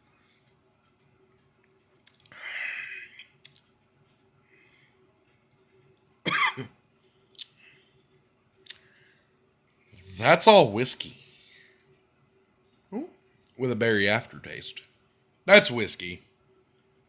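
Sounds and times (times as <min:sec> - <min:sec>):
man coughing: 0:06.3 - 0:06.8.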